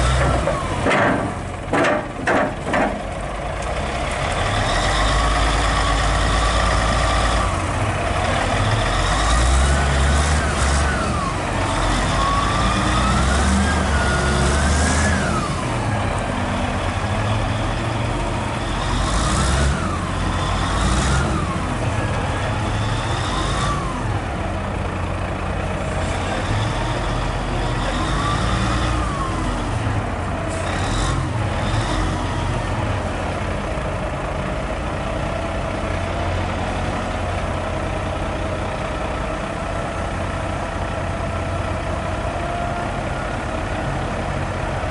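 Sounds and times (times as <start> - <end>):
truck diesel engine: 0.0 - 44.9.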